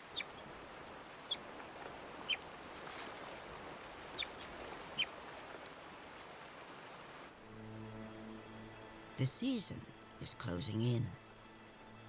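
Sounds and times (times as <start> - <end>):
river water rushing: 0.0 - 11.9
otter chirping calls: 0.1 - 0.4.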